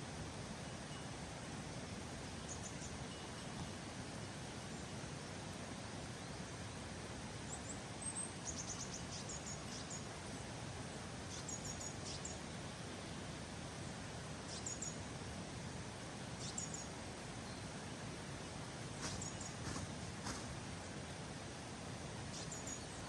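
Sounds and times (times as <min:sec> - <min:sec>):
outdoor background hiss: 0:00.0 - 0:23.0
small bird chirping: 0:07.5 - 0:10.1, 0:11.2 - 0:12.4, 0:14.5 - 0:15.0, 0:16.4 - 0:17.6, 0:19.0 - 0:20.5, 0:22.3 - 0:23.0.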